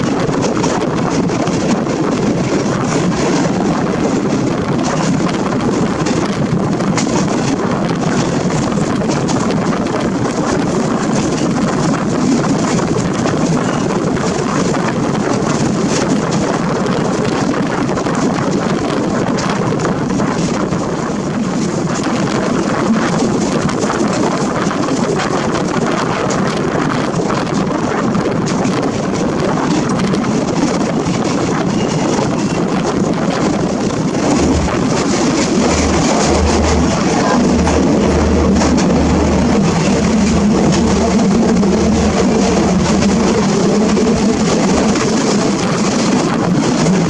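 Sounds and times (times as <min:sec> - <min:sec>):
train wheels rumbling and rattling: 0:00.0 - 0:47.0
wind buffeting microphone: 0:00.0 - 0:47.0
low pulsing throb: 0:33.0 - 0:47.0.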